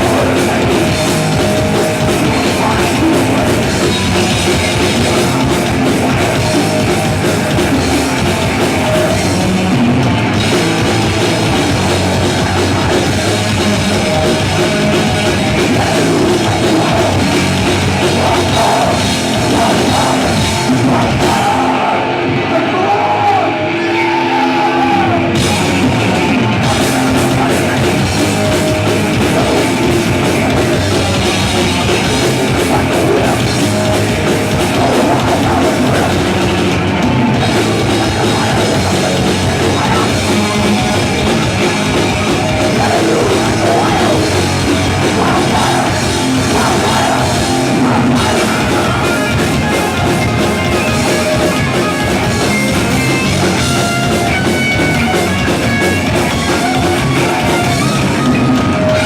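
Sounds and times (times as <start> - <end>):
bending guitar line: 0.0 - 59.0
heavy metal band playing live: 0.0 - 59.0.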